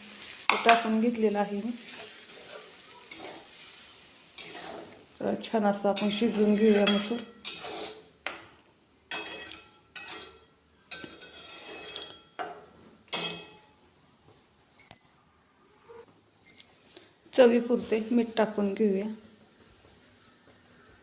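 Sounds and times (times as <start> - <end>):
metal utensils striking a pan: 0.5 - 1.0, 1.9 - 3.7, 5.8 - 8.5, 9.1 - 13.8.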